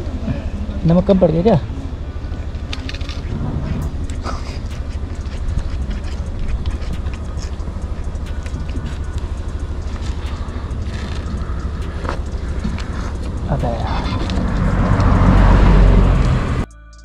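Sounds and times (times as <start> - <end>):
motorcycle engine running: 0.0 - 16.7
light clicks: 2.6 - 13.5.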